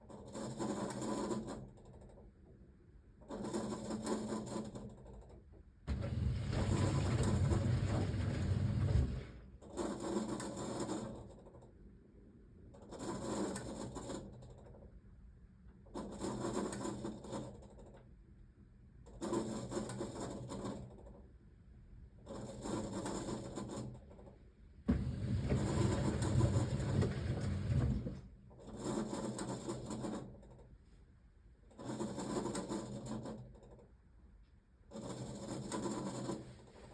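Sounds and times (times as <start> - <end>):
washing machine drum tumbling: 5.9 - 9.4, 24.9 - 28.3.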